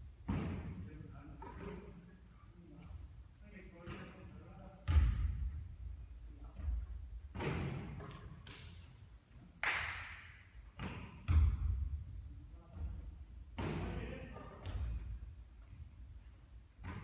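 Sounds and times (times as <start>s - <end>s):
basketball bouncing on court: 4.8s - 5.6s, 10.8s - 13.0s
shoe squeaks: 8.4s - 9.3s, 10.8s - 11.4s, 12.0s - 12.8s.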